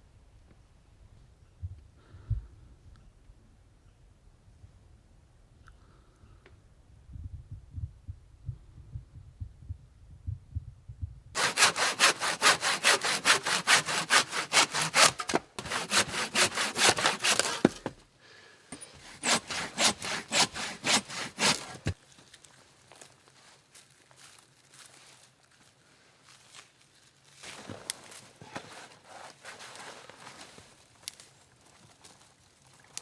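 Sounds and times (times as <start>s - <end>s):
hand saw cutting wood: 11.4s - 18.0s, 18.7s - 22.0s.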